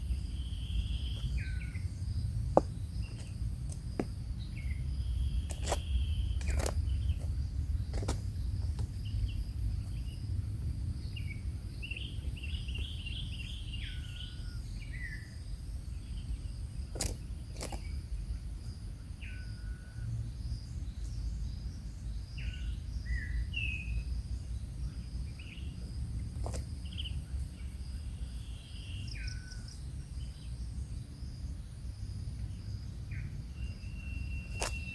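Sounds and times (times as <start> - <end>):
insect drone: 0.0 - 34.9
birds chirping and whistling: 0.3 - 2.3, 33.1 - 34.9.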